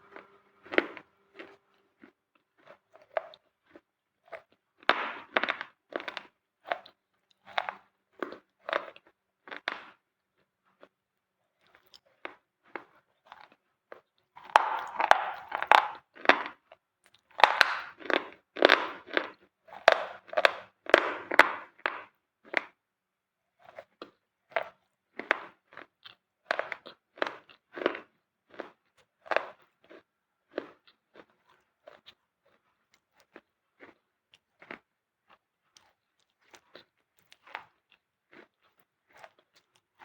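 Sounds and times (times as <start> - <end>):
brittle material crunching: 14.4 - 16.4, 17.4 - 18.9.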